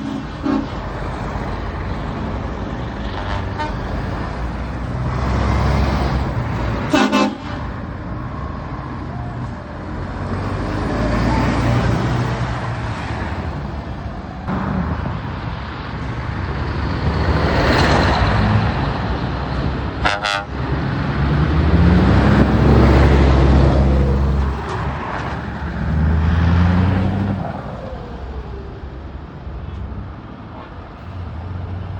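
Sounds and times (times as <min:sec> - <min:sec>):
truck horn blasts: 0:00.0 - 0:00.8, 0:03.1 - 0:03.8, 0:06.8 - 0:07.6, 0:20.0 - 0:20.6
heavy trucks driving past: 0:00.0 - 0:31.9
truck accelerating away: 0:03.8 - 0:06.8, 0:09.6 - 0:13.8, 0:14.4 - 0:30.1.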